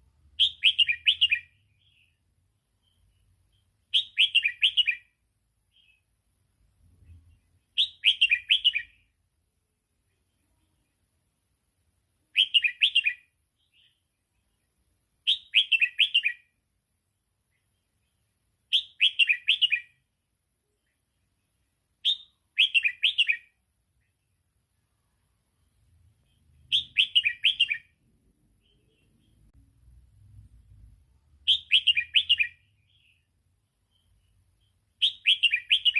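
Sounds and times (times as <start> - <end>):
bird singing warbled phrase: 0.4 - 2.2, 3.9 - 5.1, 26.3 - 29.5, 31.5 - 33.3, 35.0 - 35.9.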